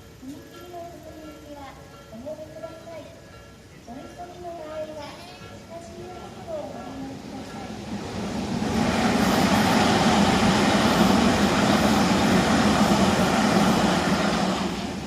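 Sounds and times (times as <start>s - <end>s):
train wheels rumbling on rail: 5.8s - 15.0s.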